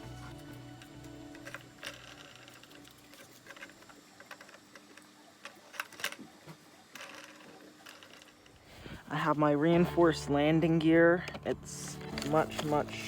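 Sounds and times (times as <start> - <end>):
background music with low beat: 0.0 - 1.8.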